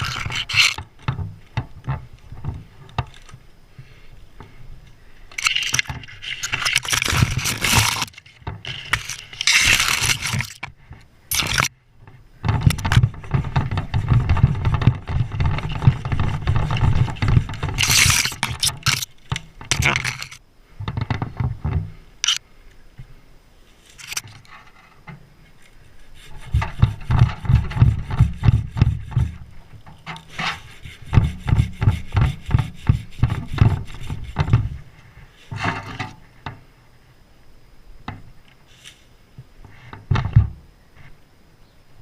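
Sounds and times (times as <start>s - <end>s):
wood scraping and rubbing: 0.0s - 3.4s, 5.3s - 10.7s, 11.3s - 11.7s, 12.4s - 22.4s, 23.7s - 36.3s.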